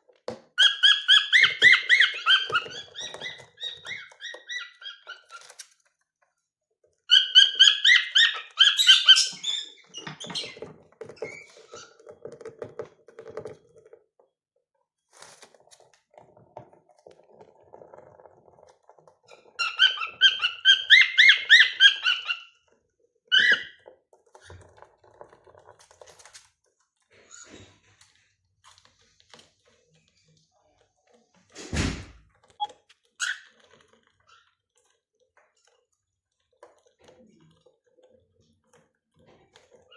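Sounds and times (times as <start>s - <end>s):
cockatiels whistling trills: 0.6s - 5.5s, 7.1s - 9.8s, 19.6s - 22.5s, 23.3s - 23.7s.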